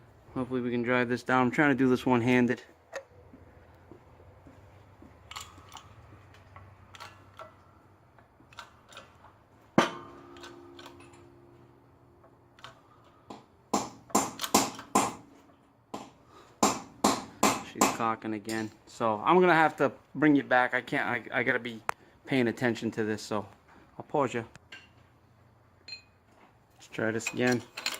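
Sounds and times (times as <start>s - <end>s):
loud metal knocks: 9.8s - 11.6s, 13.3s - 15.3s
ringing metal clank: 9.8s - 11.8s.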